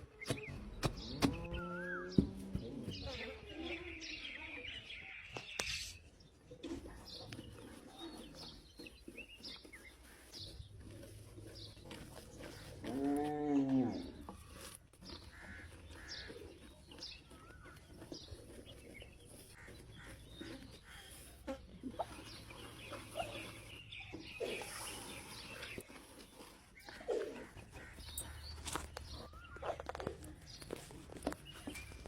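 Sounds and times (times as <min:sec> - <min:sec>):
birds chirping: 0:00.0 - 0:32.0
drawn-out animal call: 0:09.6 - 0:32.0.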